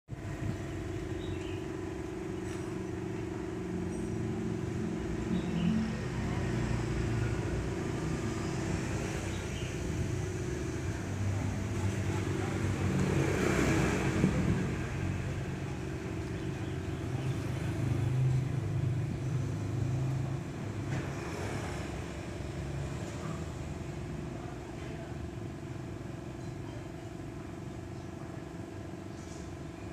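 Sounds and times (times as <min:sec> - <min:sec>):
traffic engines running: 0:00.1 - 0:29.9
vehicle passing by: 0:04.8 - 0:23.9.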